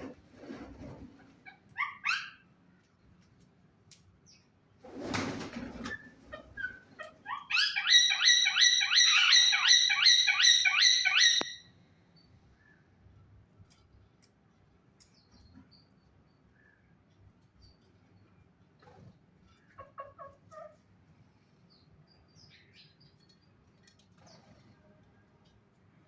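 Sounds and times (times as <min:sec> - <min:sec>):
parakeets calling: 0:06.4 - 0:11.6.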